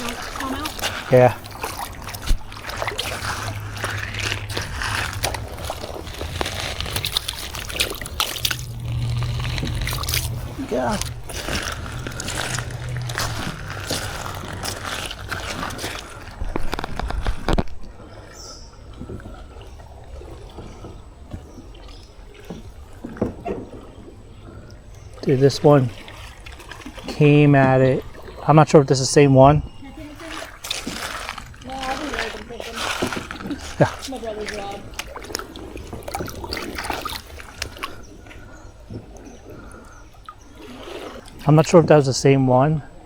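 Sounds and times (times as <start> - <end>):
low steady rumble: 0.0 - 23.0
water lapping at canoe hull: 0.0 - 43.0
light knocks against canoe: 0.1 - 8.9, 18.9 - 25.3.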